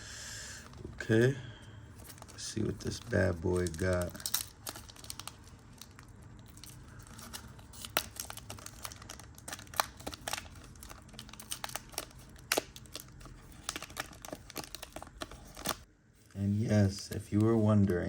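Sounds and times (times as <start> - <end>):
plastic wrapper tearing and crinkling: 2.0 - 15.9.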